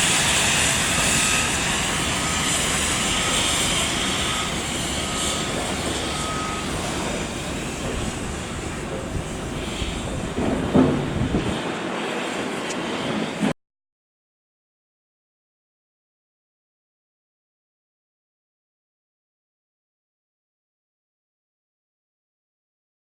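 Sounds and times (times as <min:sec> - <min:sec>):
train rumble and hiss: 0:00.0 - 0:13.6.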